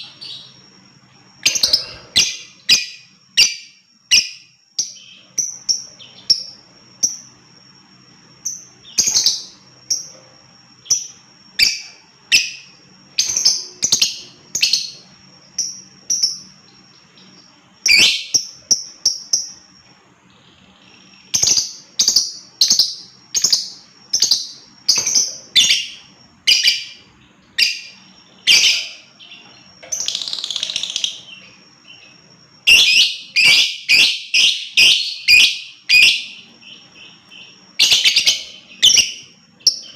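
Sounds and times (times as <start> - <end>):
lovebird chirping: 0.0 - 39.9
lovebird rasping chatter: 1.4 - 3.6.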